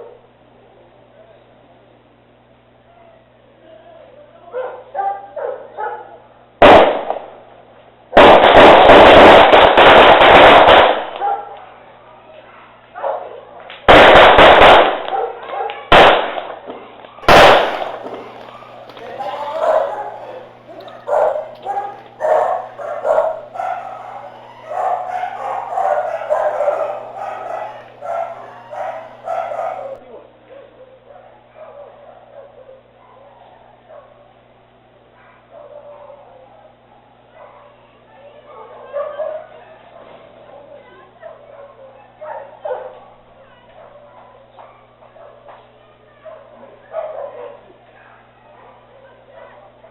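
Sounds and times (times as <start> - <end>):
dog barking: 4.5 - 6.2, 11.2 - 11.6, 12.5 - 13.4, 15.1 - 15.9, 17.2 - 30.0, 35.2 - 37.8, 38.5 - 40.2, 41.2 - 43.1, 46.2 - 49.9
short calls: 17.2 - 30.0
steady low hum: 17.2 - 30.0
gunfire sound effect: 17.3 - 19.6
rapid-fire shots: 17.3 - 20.3.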